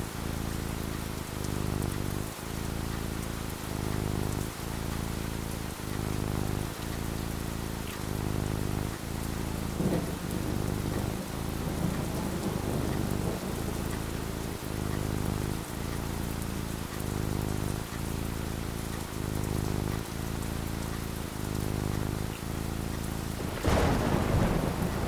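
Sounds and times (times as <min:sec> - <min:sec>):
steady rain falling: 0:00.0 - 0:25.0
low thunder rumble: 0:08.4 - 0:15.7, 0:23.2 - 0:25.0.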